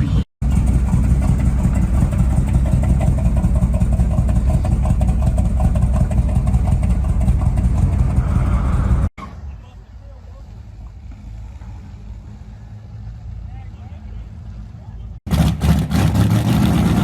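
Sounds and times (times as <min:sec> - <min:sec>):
car engine idling loudly: 0:00.4 - 0:09.0, 0:15.3 - 0:17.0.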